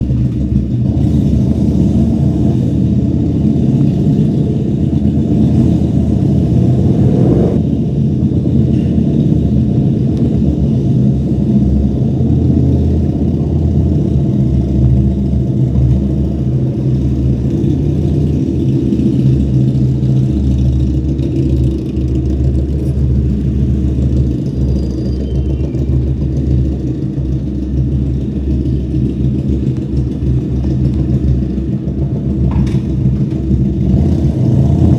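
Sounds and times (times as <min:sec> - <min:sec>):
motorcycle engine rumbling: 0:00.0 - 0:34.9.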